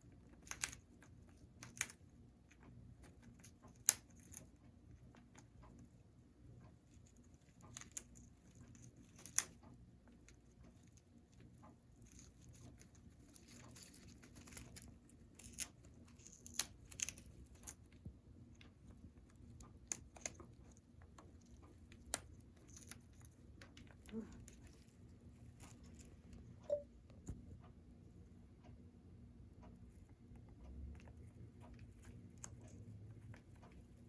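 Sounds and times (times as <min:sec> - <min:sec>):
parrot chewing a toy: 0:06.8 - 0:18.0.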